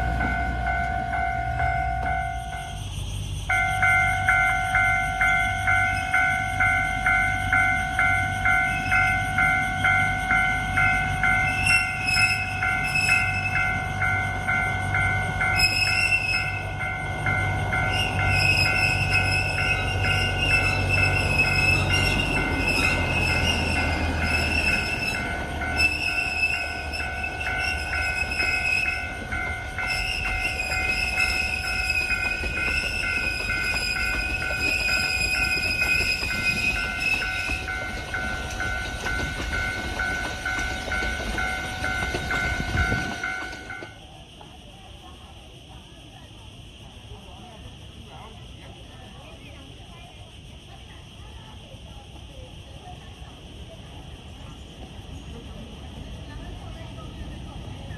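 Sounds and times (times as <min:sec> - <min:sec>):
diesel train rumble: 0:00.0 - 0:57.9
warning bell dinging: 0:03.5 - 0:44.0
wheel squeal: 0:15.4 - 0:16.7, 0:17.7 - 0:44.0.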